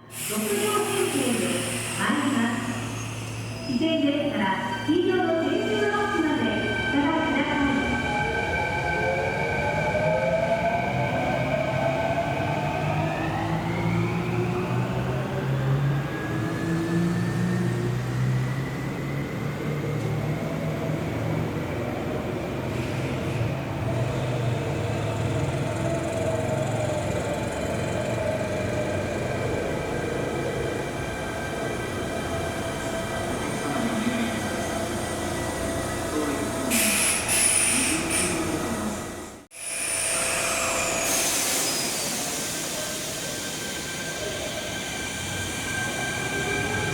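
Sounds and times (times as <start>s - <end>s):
air hissing: 0.1s - 3.7s, 36.7s - 38.6s
train whine rising in pitch: 24.1s - 46.9s.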